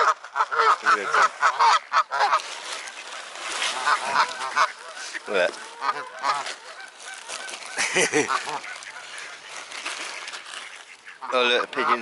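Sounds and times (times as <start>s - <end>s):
waterfowl honking: 0.0s - 12.0s.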